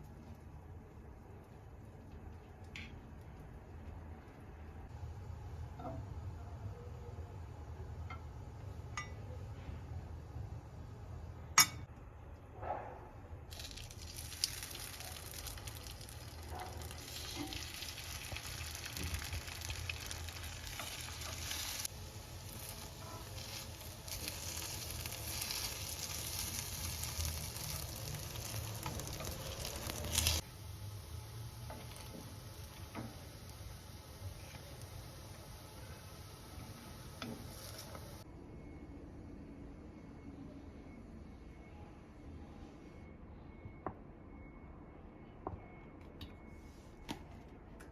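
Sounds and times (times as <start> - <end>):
food sizzling in a pan: 13.5 - 38.2.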